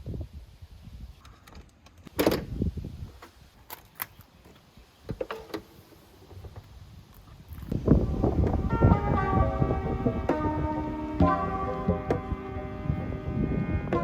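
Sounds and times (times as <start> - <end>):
handling clicks and knocks: 3.2 - 7.8
low rumble: 7.8 - 14.0.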